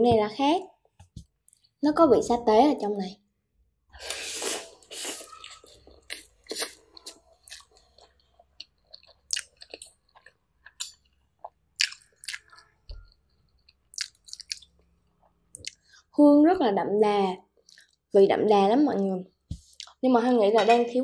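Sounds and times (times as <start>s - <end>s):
person chewing spaghetti: 4.0s - 16.0s, 17.6s - 18.0s.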